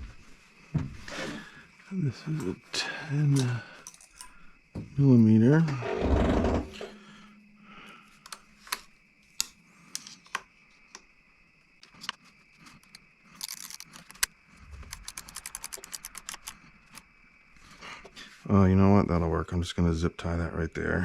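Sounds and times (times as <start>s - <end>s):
metallic clicks of hand tools: 12.8s - 17.0s
ratchet wrench clicking: 14.9s - 16.5s.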